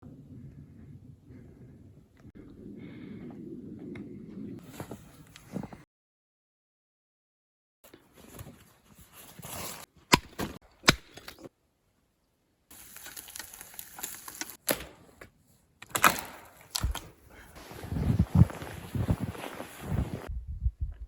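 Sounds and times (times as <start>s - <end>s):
sharp cracks: 15.8s - 17.1s
low rustling: 17.1s - 20.3s.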